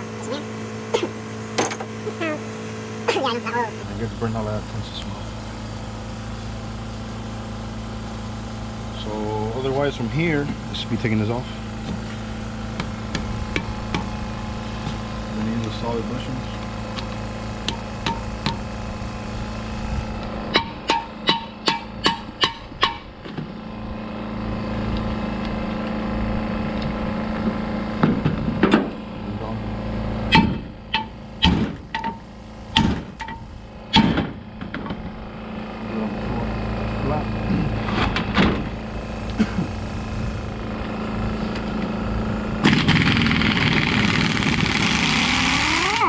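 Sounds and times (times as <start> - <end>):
power tool running with hiss: 0.0 - 4.5, 38.7 - 46.0
low mechanical hum: 0.0 - 46.0
hammer strikes on metal: 20.5 - 23.0, 30.3 - 34.3.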